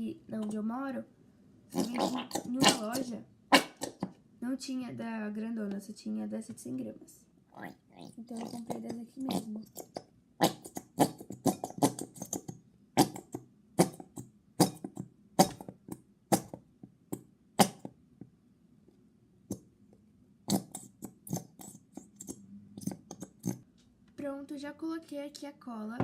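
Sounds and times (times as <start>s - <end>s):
glue bottle sputtering squelches: 20.5s - 23.6s.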